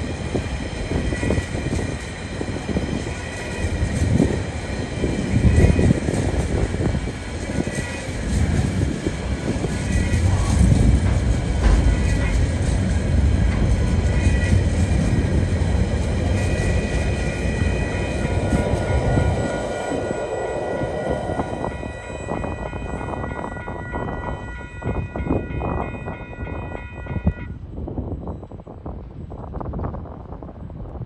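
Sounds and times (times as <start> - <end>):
freight train wheels rumbling: 0.0 - 31.0.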